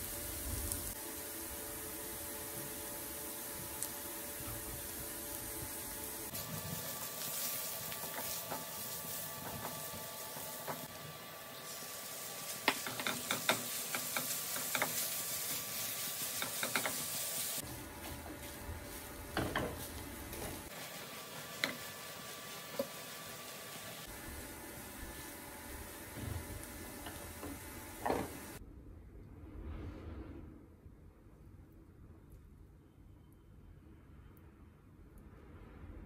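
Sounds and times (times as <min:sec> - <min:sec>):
mince frying: 0:00.0 - 0:28.6
onions sizzling in a frying pan: 0:00.0 - 0:28.6
spatula clicking and scraping pan: 0:12.6 - 0:17.2.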